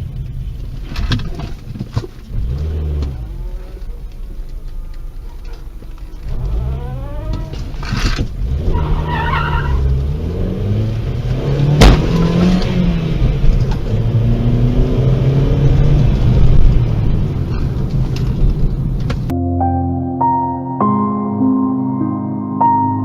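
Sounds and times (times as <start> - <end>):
car engine revving: 0.0 - 19.3
sharp bang: 11.8 - 12.5.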